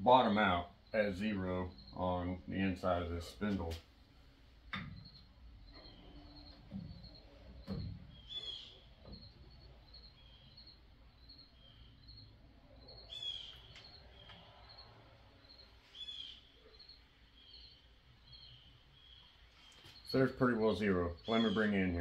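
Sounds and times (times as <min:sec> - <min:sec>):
bird chirping: 0:04.7 - 0:22.0.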